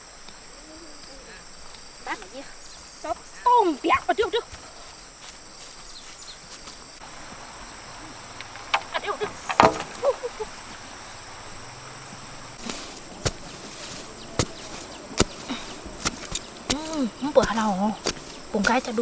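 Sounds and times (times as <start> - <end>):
insects droning: 0.0 - 19.0
sharp knocks and clicks: 8.3 - 10.1.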